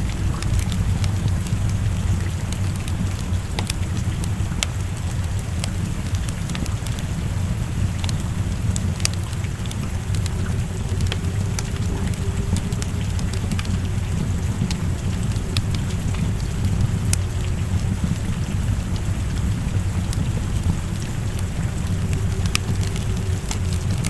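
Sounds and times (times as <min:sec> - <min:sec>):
low rumble: 0:00.0 - 0:24.0
steady rain: 0:00.0 - 0:24.0
wood fire popping and crackling: 0:00.0 - 0:24.0.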